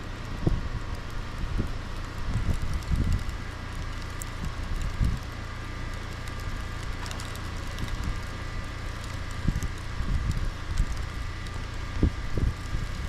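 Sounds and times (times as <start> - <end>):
wind buffeting microphone: 0.3 - 3.4, 4.3 - 5.3, 9.1 - 11.2, 11.8 - 13.0.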